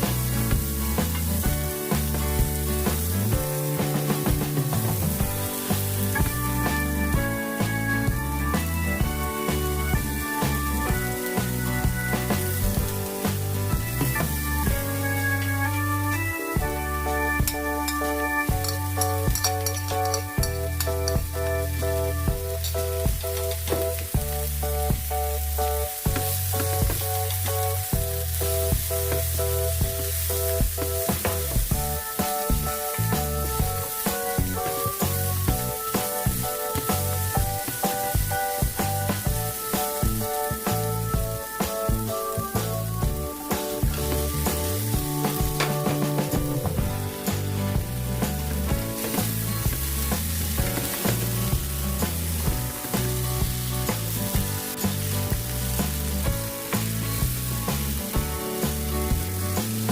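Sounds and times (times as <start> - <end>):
food sizzling in a pan: 0.0 - 59.9
instrumental music with beat: 0.0 - 59.9
stirring clicks: 17.5 - 21.2.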